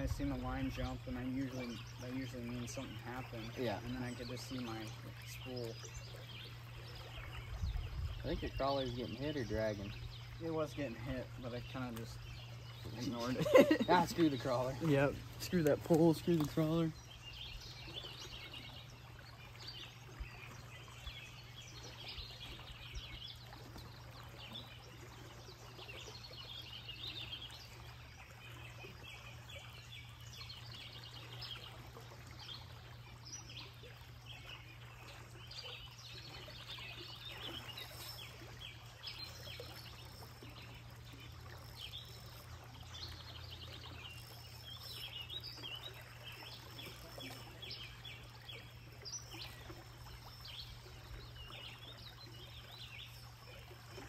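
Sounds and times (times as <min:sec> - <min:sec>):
birds chirping and singing: 0:00.0 - 0:31.8.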